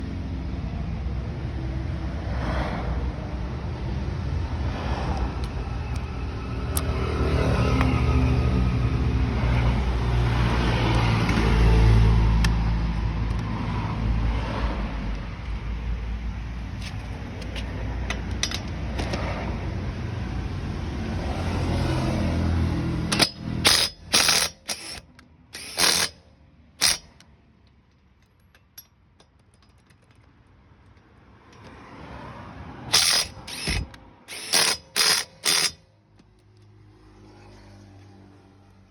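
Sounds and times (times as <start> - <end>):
impact driver bursts: 23.1 - 26.2, 26.8 - 27.2, 32.9 - 35.8.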